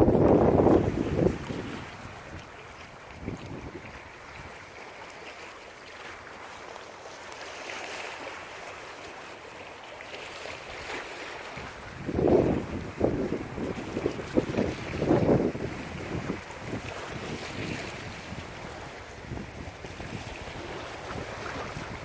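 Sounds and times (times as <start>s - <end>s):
wind gust buffeting microphone: 0.0s - 2.5s, 3.1s - 4.0s, 11.8s - 22.0s
wind: 0.0s - 22.0s.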